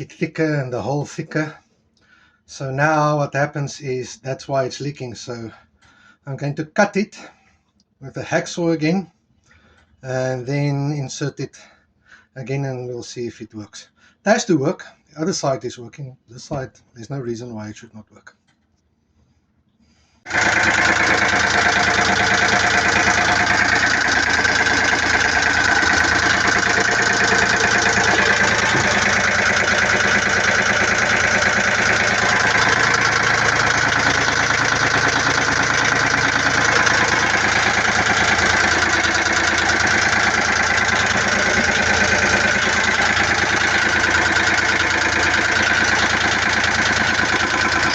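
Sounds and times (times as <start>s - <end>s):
marine diesel engine idling: 20.3s - 47.9s.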